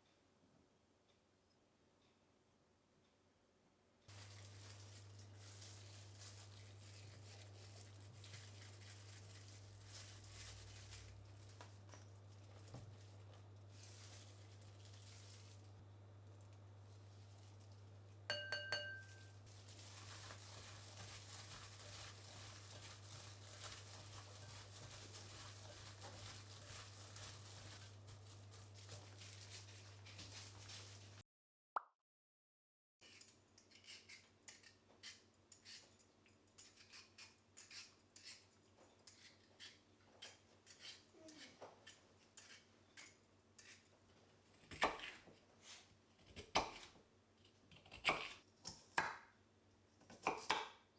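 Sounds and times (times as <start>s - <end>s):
utensils clinking: 18.3s - 19.4s.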